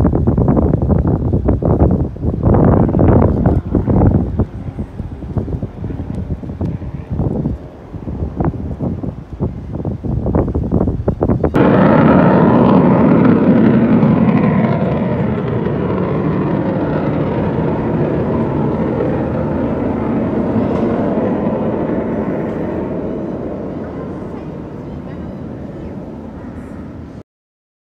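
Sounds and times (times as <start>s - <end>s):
wind buffeting microphone: 0.0s - 27.2s
jet aircraft flying past: 2.5s - 9.8s, 11.4s - 27.2s.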